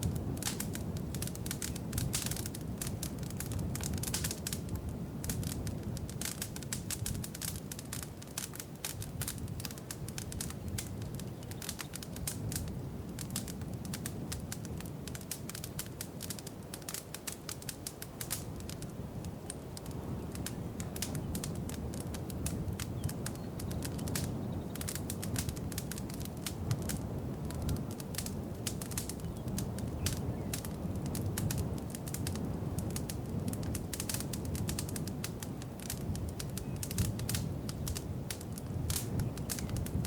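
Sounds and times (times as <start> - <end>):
fire popping and snapping: 0.0 - 40.0
wood fire crackling: 0.0 - 40.0.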